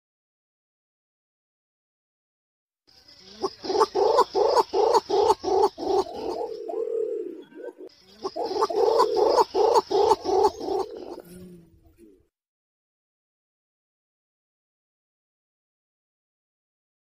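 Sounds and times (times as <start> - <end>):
pigeon cooing: 3.3 - 12.3.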